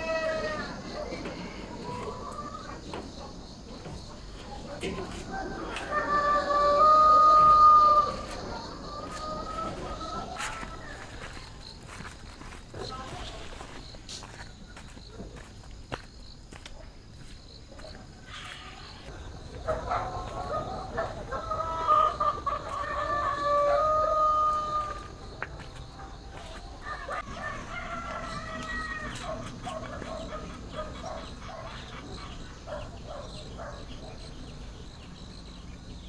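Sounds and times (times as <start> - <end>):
rooster crowing: 4.8 - 11.3, 18.4 - 31.5.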